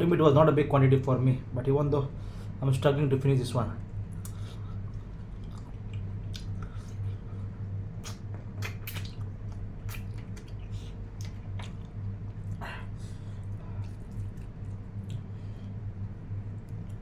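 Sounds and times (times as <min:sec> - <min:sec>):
steady low hum: 0:00.0 - 0:17.0
person chewing food: 0:04.1 - 0:17.0
wet mouth smacks: 0:05.4 - 0:07.0, 0:08.0 - 0:12.6.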